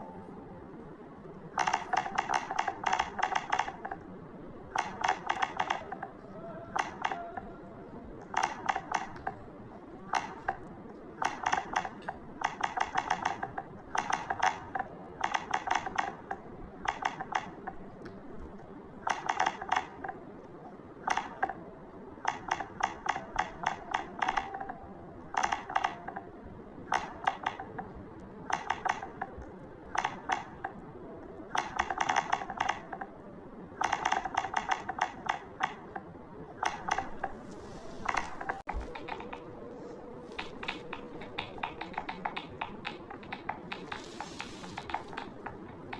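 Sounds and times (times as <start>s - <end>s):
keyboard key clicks: 40.3s - 45.9s.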